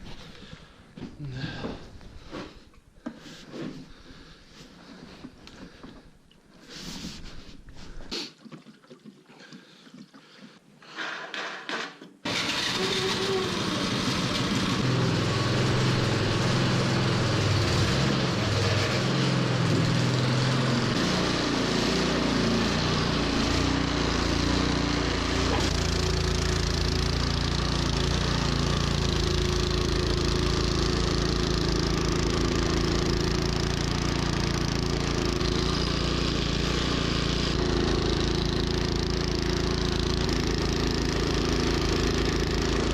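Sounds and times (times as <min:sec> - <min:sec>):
snowblower engine running: 0:12.3 - 0:42.9.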